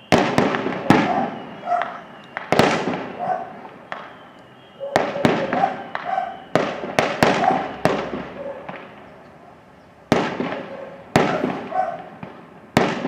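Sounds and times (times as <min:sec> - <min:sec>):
fireworks bursting with echoes: 0:00.0 - 0:13.0.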